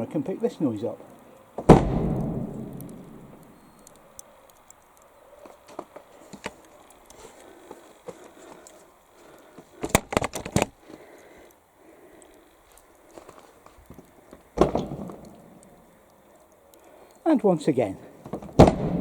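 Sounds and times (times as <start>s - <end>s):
door slamming with echo: 1.6s - 3.4s, 18.6s - 19.0s.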